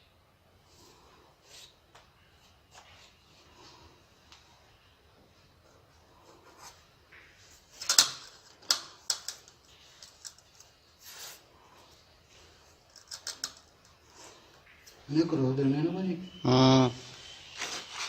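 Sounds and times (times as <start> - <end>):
tools and tiles scraping and tapping: 5.8 - 11.9, 12.5 - 14.5.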